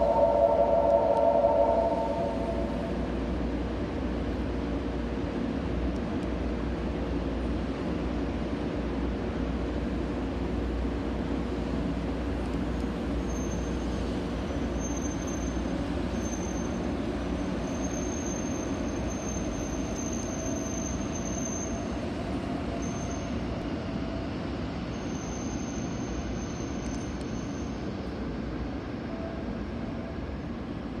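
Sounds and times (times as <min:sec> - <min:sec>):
faint high whine: 0:00.0 - 0:03.2
train rumbling: 0:00.0 - 0:31.0.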